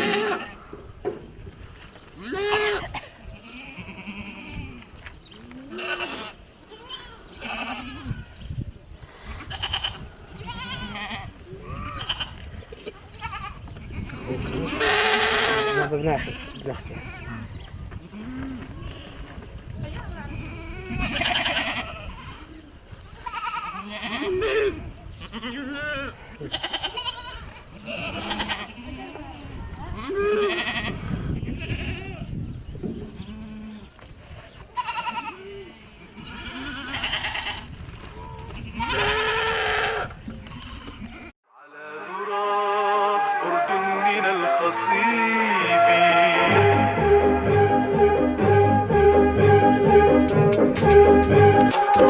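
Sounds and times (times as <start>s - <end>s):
goats bleating: 0.0s - 0.6s, 2.2s - 4.9s, 5.6s - 8.3s, 9.4s - 17.5s, 20.5s - 22.6s, 23.2s - 29.2s, 29.9s - 32.3s, 34.8s - 37.7s, 38.6s - 41.3s.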